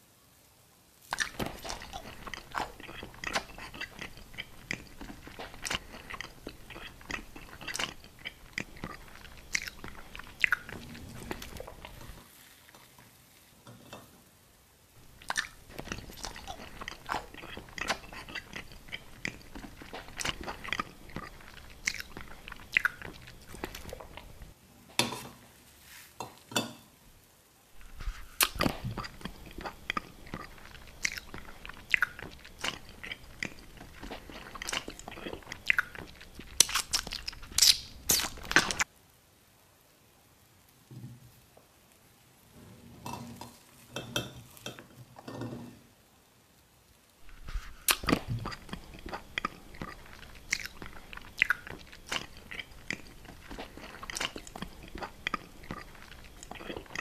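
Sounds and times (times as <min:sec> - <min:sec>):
mouth clicks: 0:01.1 - 0:12.1, 0:15.0 - 0:24.5, 0:27.8 - 0:38.9, 0:47.2 - 0:57.0
crunchy chewing: 0:01.1 - 0:12.9, 0:15.0 - 0:24.6, 0:27.8 - 0:38.9, 0:47.2 - 0:57.0.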